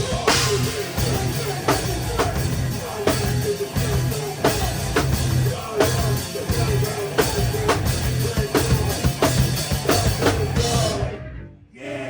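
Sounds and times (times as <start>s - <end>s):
loud drums: 0.0s - 11.1s
rock band playing live: 0.0s - 11.4s.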